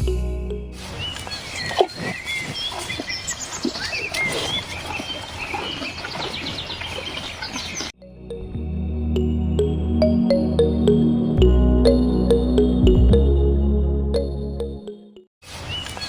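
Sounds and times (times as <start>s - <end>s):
animal chirps: 0.8s - 7.9s.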